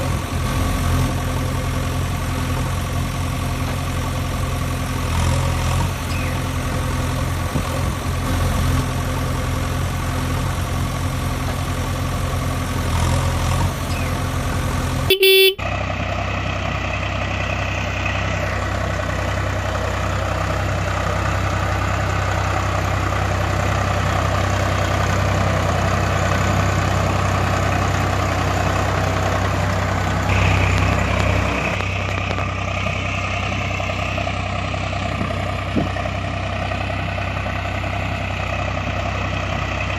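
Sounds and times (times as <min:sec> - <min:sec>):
tractor engine running: 0:00.0 - 0:39.9
horn toot: 0:15.1 - 0:15.6.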